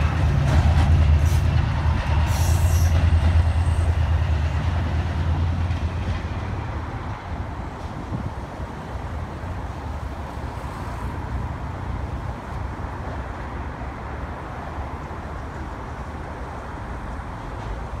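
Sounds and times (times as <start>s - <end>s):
wind buffeting the microphone: 0.0s - 9.9s
diesel train rumbling: 0.0s - 18.0s.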